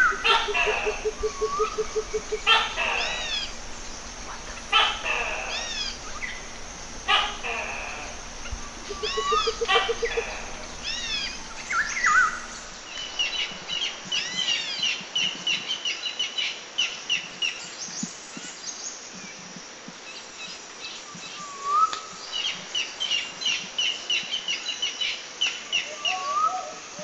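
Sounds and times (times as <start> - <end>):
songbirds chirping and singing: 0.0 - 15.0
background hiss: 0.0 - 27.0.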